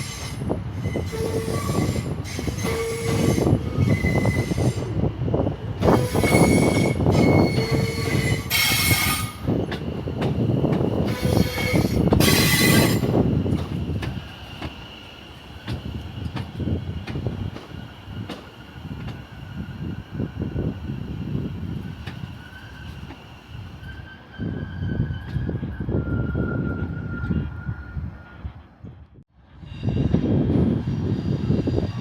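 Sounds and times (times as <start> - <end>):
train wheels squealing: 0.0 - 28.5
train wheels rumbling on track: 0.0 - 28.6, 29.3 - 32.0.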